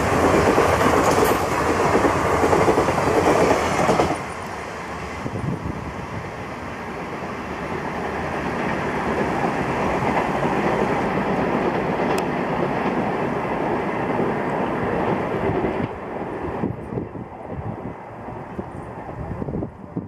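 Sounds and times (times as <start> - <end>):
train wheels clattering on rails: 0.0 - 4.6, 8.0 - 17.0.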